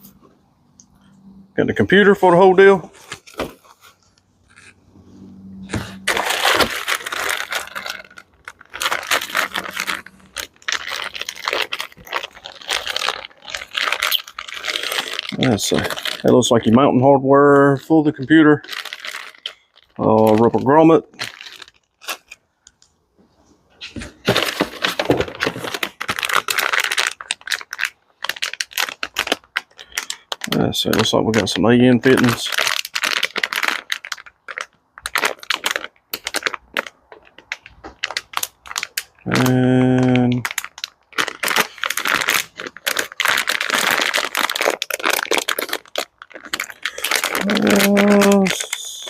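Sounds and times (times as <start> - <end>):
plastic packaging crinkling: 1.8 - 23.0, 23.8 - 49.0.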